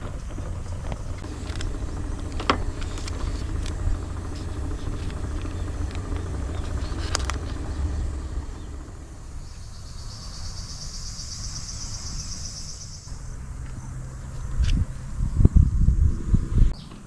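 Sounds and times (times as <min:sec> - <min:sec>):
low rumble: 0:00.0 - 0:16.7
insect trill: 0:01.0 - 0:13.4.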